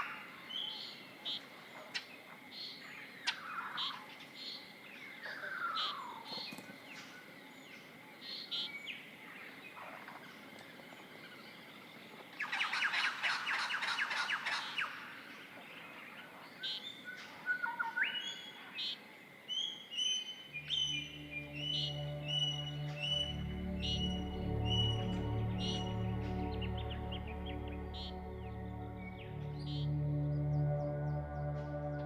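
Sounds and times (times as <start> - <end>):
birds chirping: 0.0 - 32.0
loud rapid bird trill: 12.4 - 15.9, 16.6 - 28.2
falling whistled bird notes: 16.6 - 28.2.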